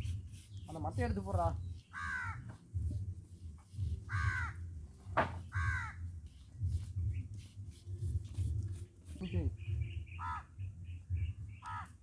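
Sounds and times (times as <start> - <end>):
bird calling: 9.3 - 12.0.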